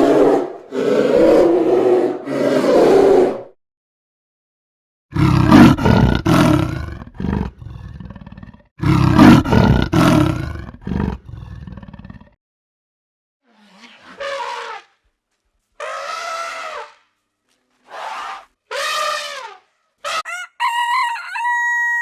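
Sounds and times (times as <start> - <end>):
big cat roaring: 0.0 - 3.5, 5.1 - 12.4
big cat grunts: 5.1 - 12.4.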